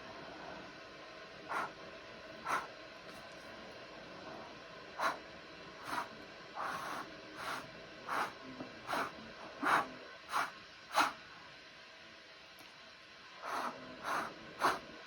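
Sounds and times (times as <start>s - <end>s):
short puffs of blown air: 8.9s - 11.2s.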